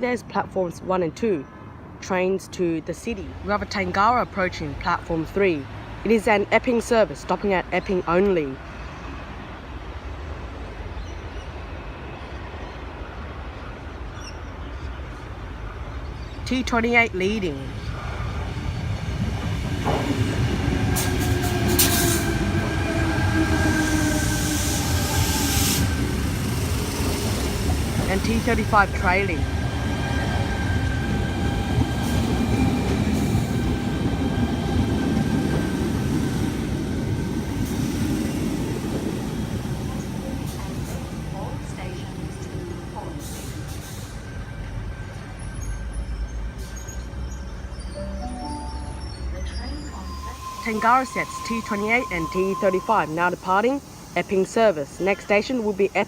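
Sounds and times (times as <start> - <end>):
electric train rumbling in: 15.0 - 56.0.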